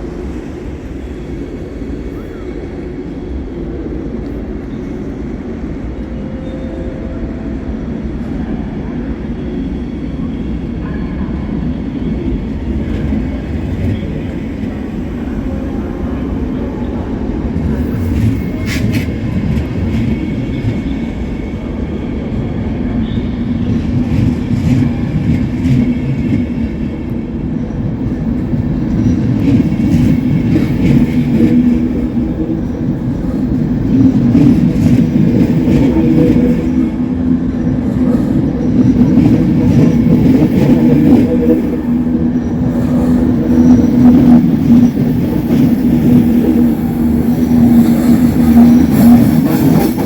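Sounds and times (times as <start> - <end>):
train rumbling on tracks: 0.0 - 50.0.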